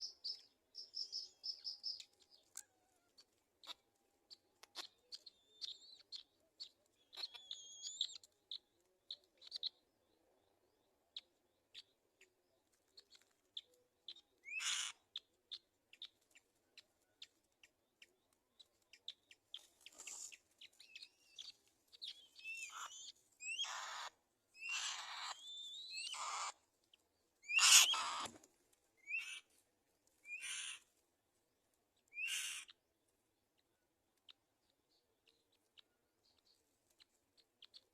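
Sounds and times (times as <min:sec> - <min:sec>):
faint high bird chirps: 0:00.0 - 0:28.4, 0:29.0 - 0:29.5, 0:30.2 - 0:30.9, 0:31.9 - 0:32.8, 0:33.4 - 0:37.9
harsh raspy bird screeches: 0:14.5 - 0:14.9, 0:22.7 - 0:26.6, 0:27.5 - 0:28.3, 0:30.3 - 0:30.8, 0:32.2 - 0:32.7.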